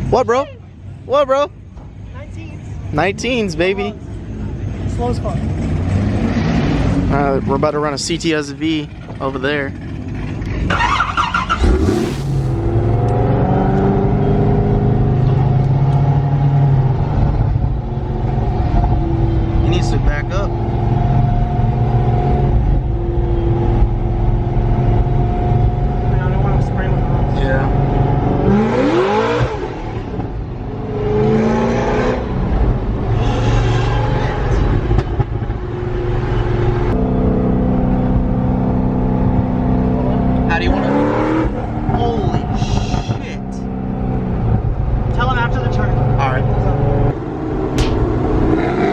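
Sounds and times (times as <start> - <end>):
car engine revving: 9.8 - 15.9, 31.0 - 48.9
rush of noise: 11.4 - 13.7.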